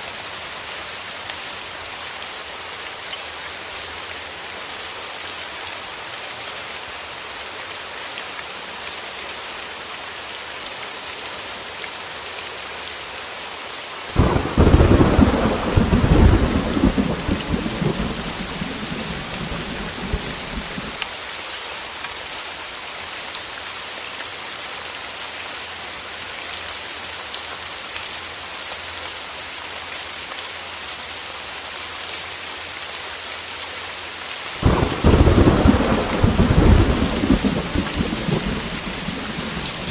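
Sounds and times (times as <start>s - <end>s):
heavy rain on a window: 14.1s - 22.4s, 34.4s - 39.9s
thunder rumbling: 14.2s - 21.0s, 34.6s - 39.9s.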